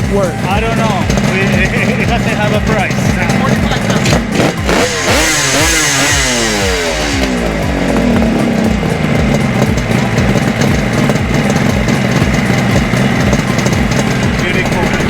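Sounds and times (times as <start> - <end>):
motorcycle engine revving and idling: 0.0 - 15.0.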